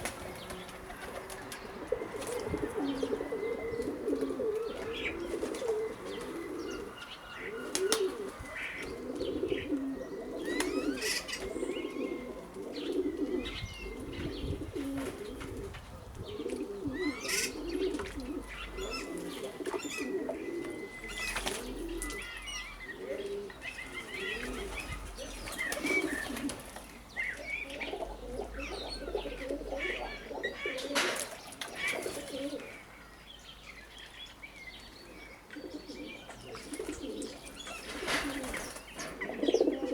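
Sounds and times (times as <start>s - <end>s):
wings flapping: 0.0s - 2.5s
doves cooing: 0.0s - 33.1s, 35.0s - 39.9s
songbirds chirping: 0.0s - 39.9s.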